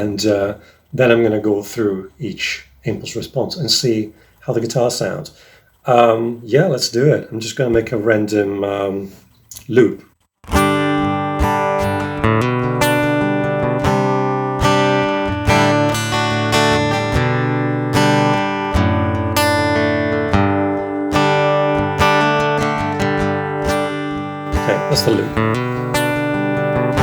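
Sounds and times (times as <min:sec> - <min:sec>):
acoustic guitar chords: 0:10.4 - 0:27.0.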